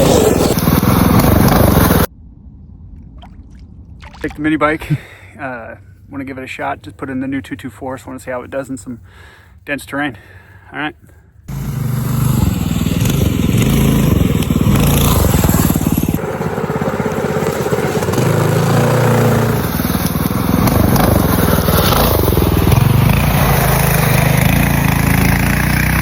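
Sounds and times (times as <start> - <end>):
minibike engine running under load: 11.5 - 26.0.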